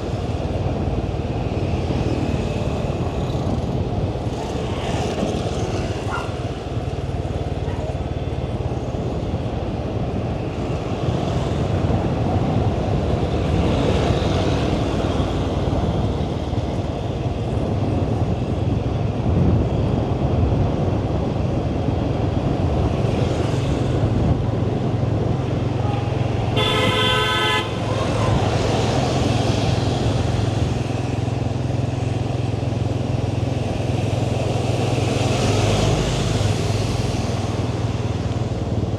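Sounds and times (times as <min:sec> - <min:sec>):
road and wind noise: 0:00.0 - 0:38.9
vehicle horn honking: 0:26.6 - 0:27.8.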